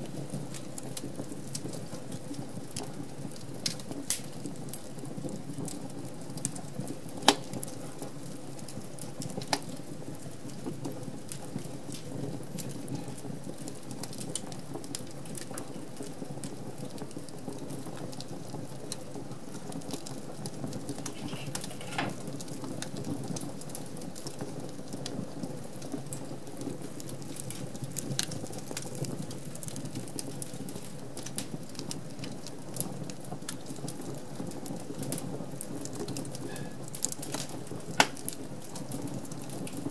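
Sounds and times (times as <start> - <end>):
burning logs popping: 0.0 - 39.9
rush of flame: 20.8 - 22.6.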